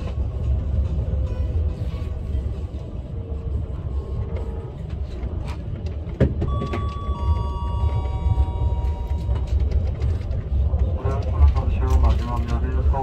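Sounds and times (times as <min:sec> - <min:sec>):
train interior rumble: 0:00.0 - 0:13.0
high-pitched tones: 0:06.5 - 0:09.6.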